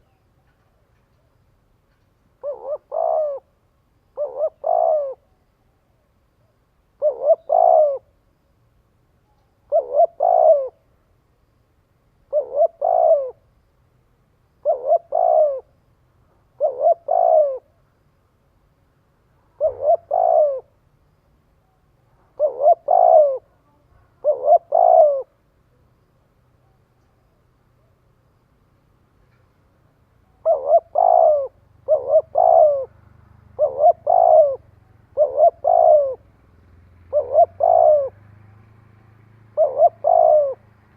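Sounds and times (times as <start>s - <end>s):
dove cooing: 2.4s - 8.2s, 9.2s - 10.9s, 12.3s - 13.5s, 14.6s - 15.8s, 16.4s - 17.8s, 19.5s - 20.8s, 21.7s - 25.4s, 30.2s - 36.4s, 37.0s - 38.6s, 39.4s - 40.8s.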